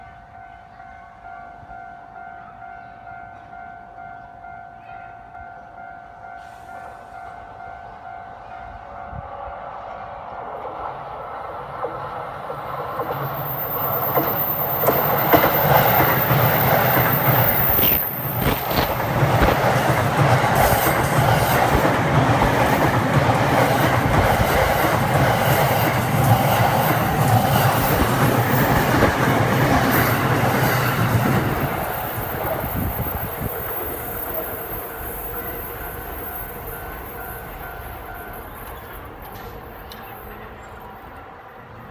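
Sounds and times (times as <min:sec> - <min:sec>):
train wheels clattering over joints: 0:11.8 - 0:34.6.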